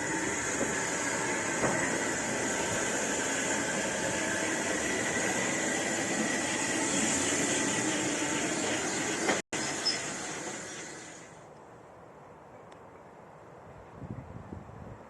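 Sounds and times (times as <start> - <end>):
train rushing past: 0.0 - 11.5.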